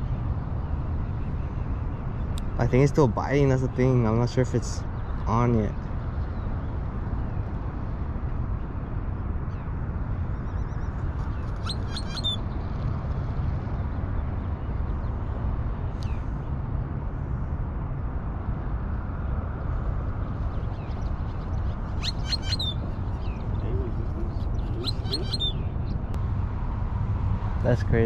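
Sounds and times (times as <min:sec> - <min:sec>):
birds chirping: 0:00.0 - 0:07.5, 0:09.5 - 0:16.5, 0:19.6 - 0:26.2
steady low rumble: 0:00.0 - 0:28.0
falling bird whistle: 0:11.6 - 0:12.4.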